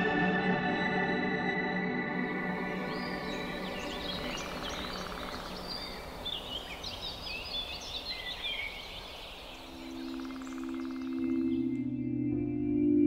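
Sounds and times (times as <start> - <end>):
ambient music: 0.0 - 7.3, 9.4 - 13.0
birds chirping and singing: 2.1 - 12.6
steady outdoor hiss: 2.2 - 11.7.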